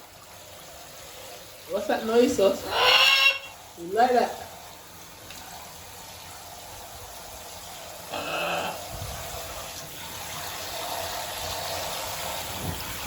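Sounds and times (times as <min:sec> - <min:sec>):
shower water spraying: 0:00.0 - 0:13.0
parrot squawk: 0:02.6 - 0:03.6, 0:08.1 - 0:08.8.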